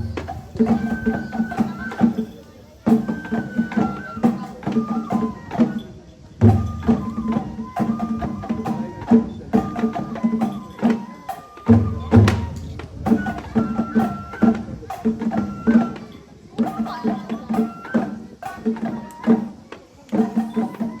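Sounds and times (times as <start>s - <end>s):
heavy low drum strokes: 0.0s - 21.0s
high bamboo flute melody: 0.0s - 21.0s
steady drum rhythm: 0.0s - 21.0s.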